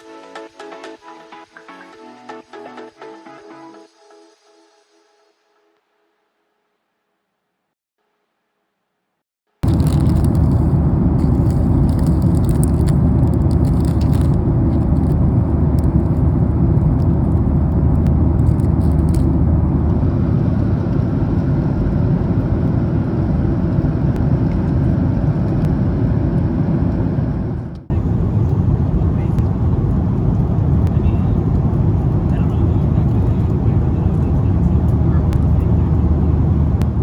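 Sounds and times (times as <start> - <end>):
crackling noise: 9.6 - 37.0
jet engines rumbling in cabin: 9.6 - 37.0.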